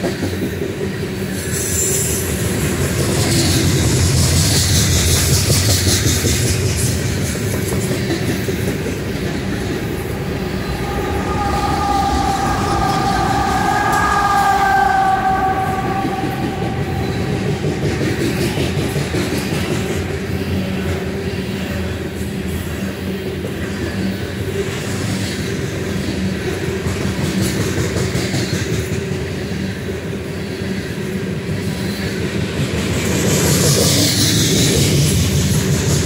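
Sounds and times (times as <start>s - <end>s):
locomotive whine: 0.0s - 20.8s
freight train wheels rumbling: 0.0s - 36.0s.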